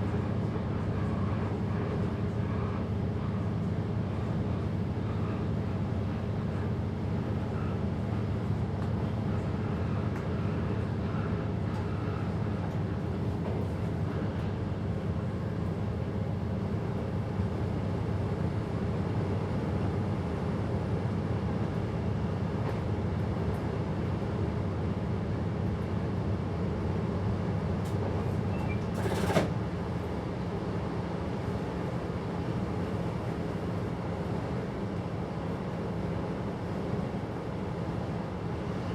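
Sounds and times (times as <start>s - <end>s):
train motors and wheels drone: 0.0s - 25.9s.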